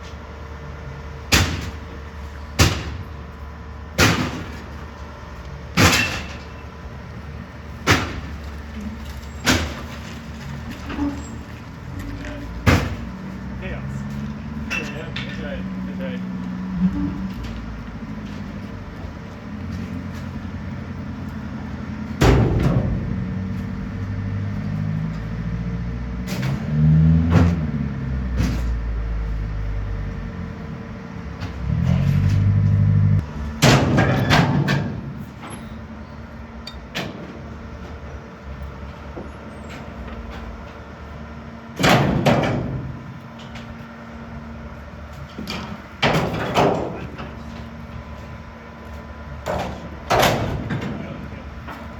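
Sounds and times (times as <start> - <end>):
truck engine hum: 0.0 - 51.9
loud metal clanks and bangs: 1.2 - 3.1, 3.9 - 5.0, 5.7 - 25.4, 26.2 - 35.9, 41.8 - 43.7, 45.2 - 48.4, 49.4 - 51.9.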